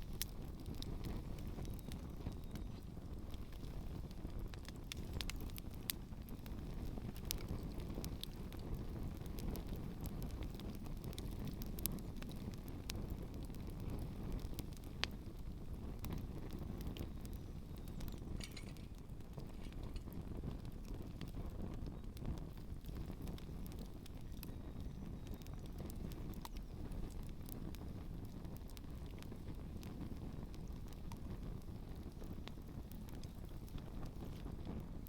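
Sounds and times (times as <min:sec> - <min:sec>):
campfire crackling: 0:00.0 - 0:35.0.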